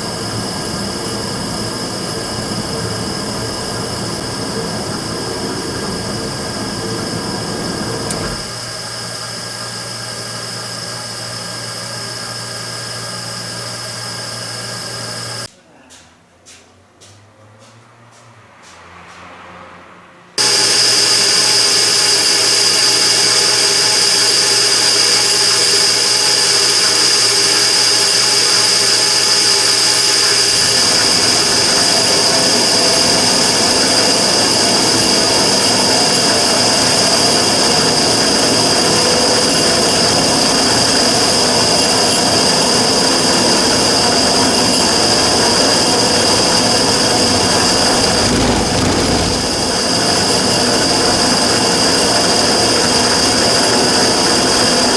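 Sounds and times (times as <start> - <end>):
burner rushing with high whine: 0.0 - 8.8, 44.7 - 53.0.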